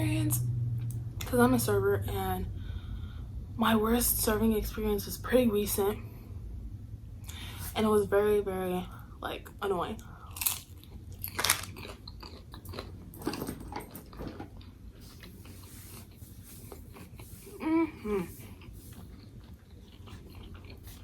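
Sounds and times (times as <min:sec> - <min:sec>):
chewing with crust crackles: 0:10.0 - 0:21.0
crunchy bite into baguette: 0:10.4 - 0:13.0
person humming: 0:17.5 - 0:18.4.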